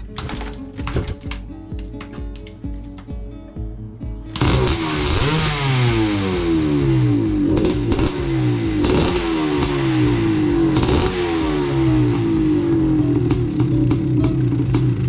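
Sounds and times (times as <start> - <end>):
dirt bike engine revving: 4.3 - 15.0.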